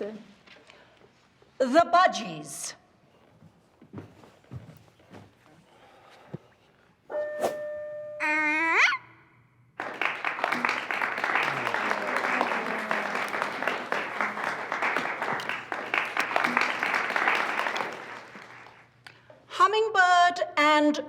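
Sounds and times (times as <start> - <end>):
audience applauding: 9.8 - 19.0.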